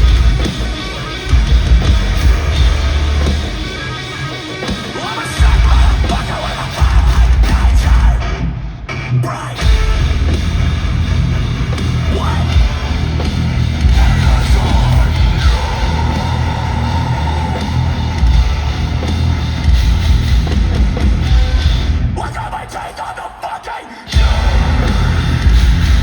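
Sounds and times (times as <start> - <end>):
bass guitar: 0.0 - 22.4, 24.1 - 26.0
pounding drums: 0.0 - 23.0, 24.1 - 26.0
distorted electric guitars: 0.0 - 26.0
shouted vocals: 12.0 - 13.2, 13.8 - 19.6, 22.2 - 25.9.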